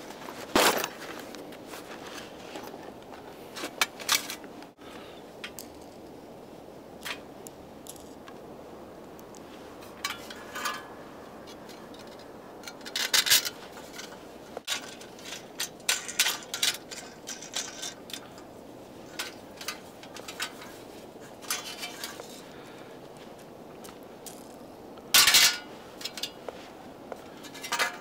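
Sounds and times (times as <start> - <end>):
handled objects clicking and rattling: 7.0 - 8.4, 9.2 - 22.5, 27.3 - 28.0.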